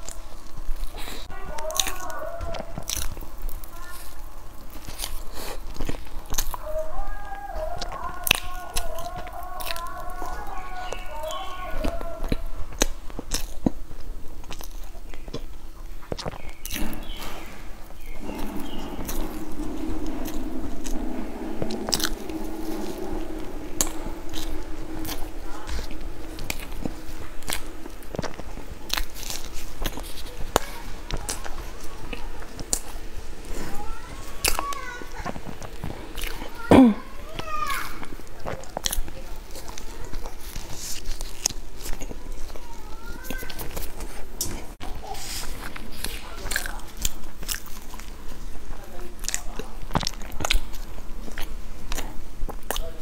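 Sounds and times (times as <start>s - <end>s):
biting into soft cake: 0.0s - 53.0s
wet chewing with clicks: 0.0s - 53.0s
low hum: 16.6s - 46.2s.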